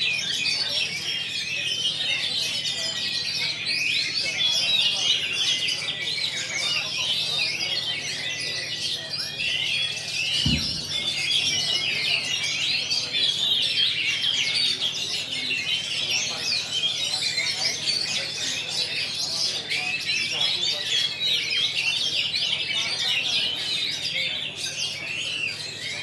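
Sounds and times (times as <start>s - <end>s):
many birds singing: 0.0s - 26.0s
low thump: 10.4s - 11.6s.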